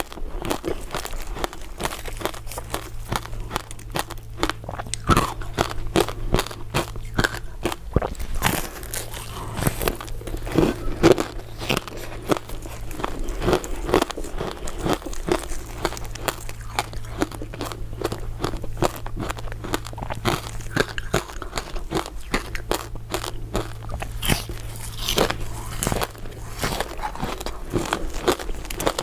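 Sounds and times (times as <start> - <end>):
crunching ice dessert: 0.0 - 29.0.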